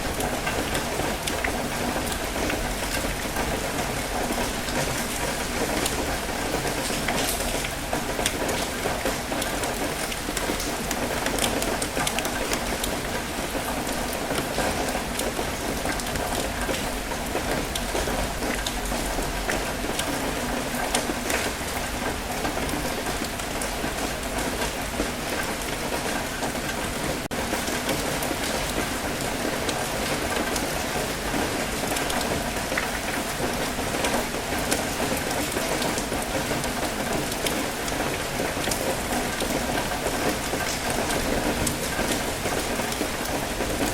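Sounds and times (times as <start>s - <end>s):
rain drops pattering: 0.0s - 43.9s.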